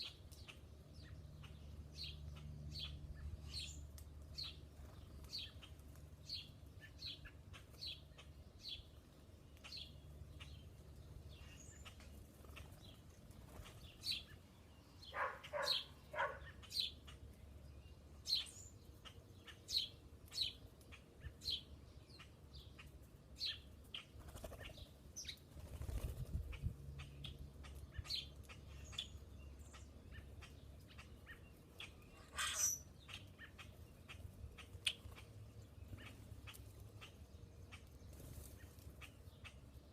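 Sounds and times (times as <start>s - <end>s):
small songbirds chirping: 0.0s - 39.9s
harsh rattling bird call: 32.2s - 33.7s.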